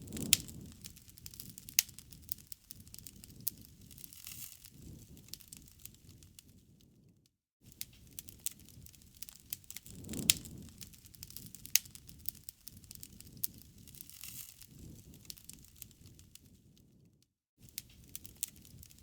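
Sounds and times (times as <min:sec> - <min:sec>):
wood fire crackling and popping: 0:00.0 - 0:07.0, 0:07.7 - 0:17.1, 0:17.7 - 0:19.0
rustling of flames: 0:00.0 - 0:19.0.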